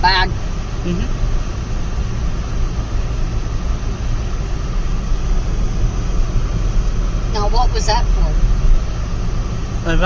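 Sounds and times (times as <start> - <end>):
car cabin road rumble: 0.0 - 10.0.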